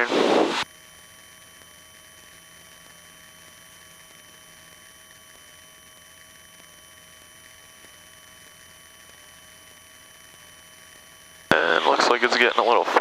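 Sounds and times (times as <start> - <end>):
thin steady whine tones: 0.0 - 13.0
low electrical hum: 0.6 - 13.0.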